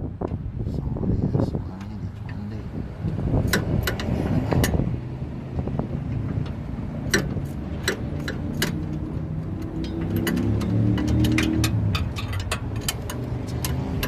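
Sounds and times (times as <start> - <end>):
steady low rumble: 0.0 - 14.0
hand tools clicking on metal: 7.1 - 14.0.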